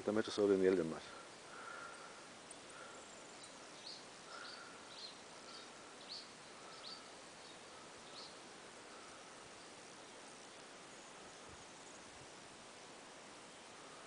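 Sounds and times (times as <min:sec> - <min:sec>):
steady background hiss: 0:00.0 - 0:14.0
faint small bird chirps: 0:00.6 - 0:12.2.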